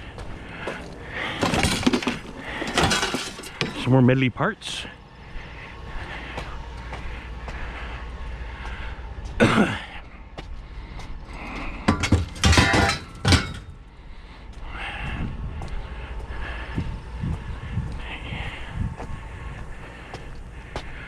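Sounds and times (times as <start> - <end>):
steady low hum: 0.0 - 21.0
scrap metal clanking: 0.4 - 4.0, 11.6 - 13.8.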